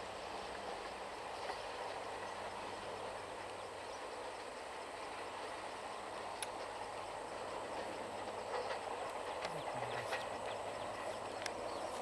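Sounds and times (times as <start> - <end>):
train wheels rumbling on rail: 0.0 - 12.0
sharp track clicks: 6.2 - 6.8, 7.4 - 12.0.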